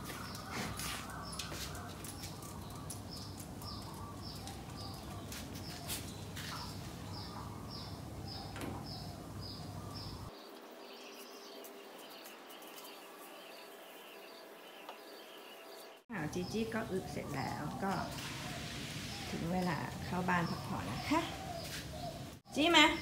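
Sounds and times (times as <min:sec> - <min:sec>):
other birds chirping lower: 0:00.0 - 0:23.0.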